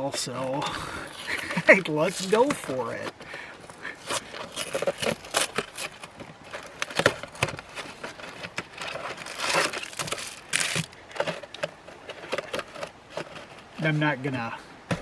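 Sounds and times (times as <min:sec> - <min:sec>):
foil wrapper crinkling: 0:00.6 - 0:13.8
cardboard box tearing: 0:01.0 - 0:03.2, 0:03.9 - 0:11.0.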